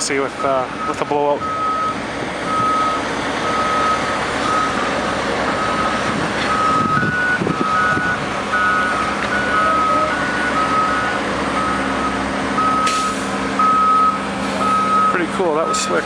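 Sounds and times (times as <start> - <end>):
truck backup alarm beeping: 0.0 - 16.0
truck engines running: 0.0 - 16.0
higher-pitched alarm beeping: 0.4 - 4.8, 5.6 - 16.0.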